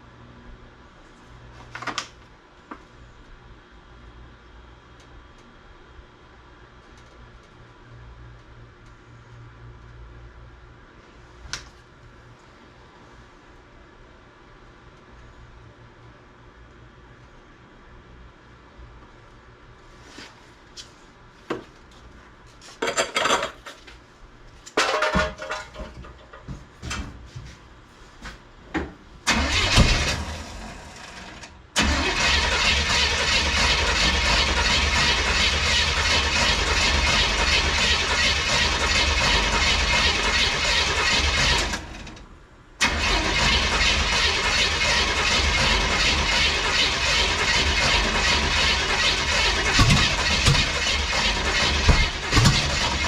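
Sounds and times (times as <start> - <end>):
clanks and knocks: 24.8 - 27.2.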